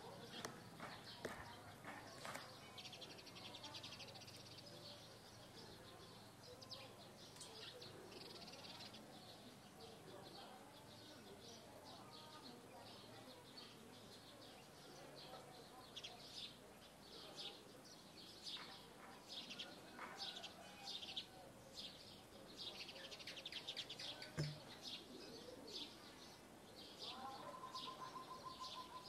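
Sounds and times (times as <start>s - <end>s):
faint birds chirping: 0.0s - 29.0s
sharp knock: 24.4s - 24.7s.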